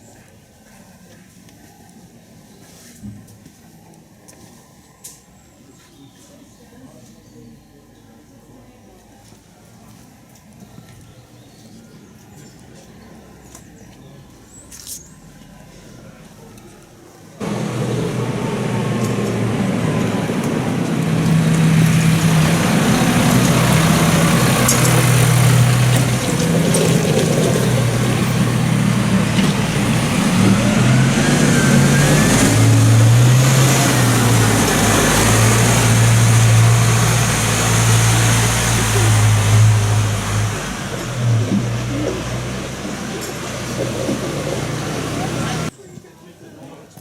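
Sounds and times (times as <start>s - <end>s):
tractor engines revving: 17.4s - 45.7s.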